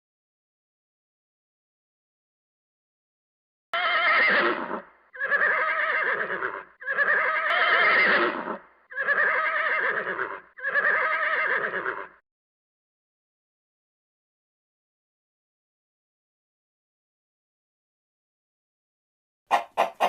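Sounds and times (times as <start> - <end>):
horse whinnying: 3.8 - 12.2.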